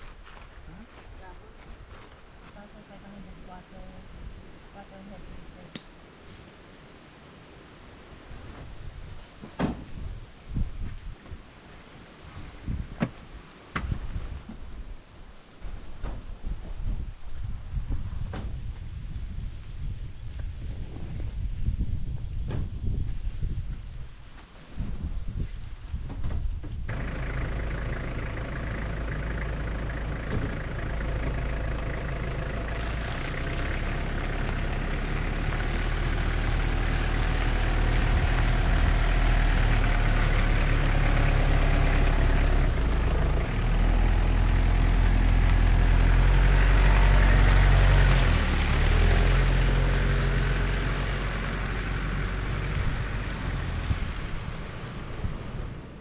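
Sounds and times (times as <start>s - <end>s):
vehicle engine running: 26.9s - 56.0s.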